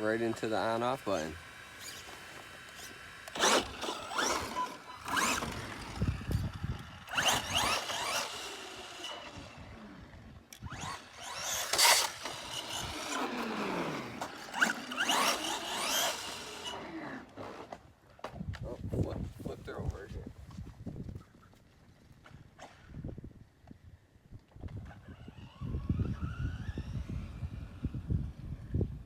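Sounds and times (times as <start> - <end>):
electric motor whining: 0.0 - 17.8, 24.8 - 28.9.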